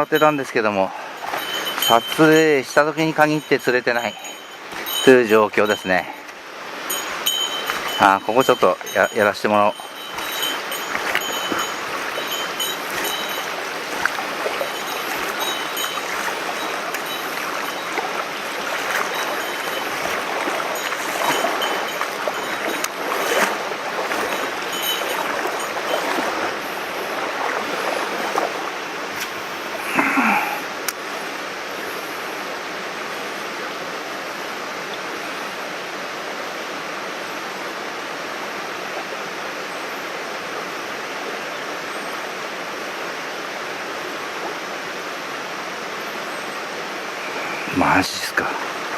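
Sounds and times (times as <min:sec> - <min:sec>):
stream water running: 0:00.0 - 0:48.9
clicks and small splashes: 0:09.8 - 0:26.5, 0:27.1 - 0:29.4.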